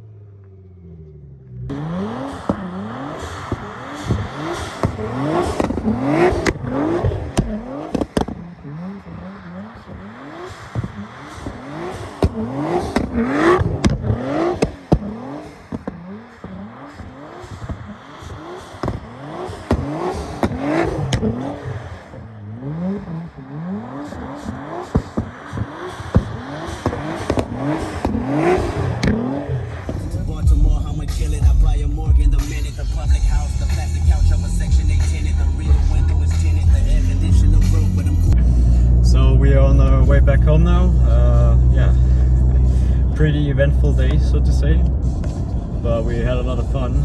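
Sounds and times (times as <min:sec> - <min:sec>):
exhaust cracks and pops: 0:00.4 - 0:31.1
car engine revving hard: 0:00.8 - 0:47.0.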